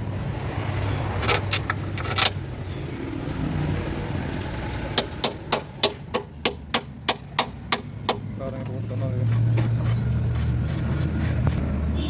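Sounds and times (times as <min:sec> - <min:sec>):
regular sharp taps: 0:05.0 - 0:08.8.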